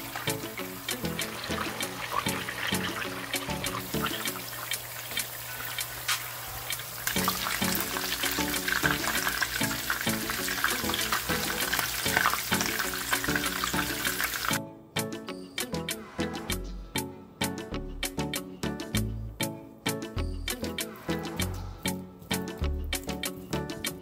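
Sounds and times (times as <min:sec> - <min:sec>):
background music: 0:00.0 - 0:06.1, 0:06.7 - 0:24.0
meatballs sizzling in oil: 0:00.0 - 0:14.6
oil popping: 0:00.0 - 0:14.6.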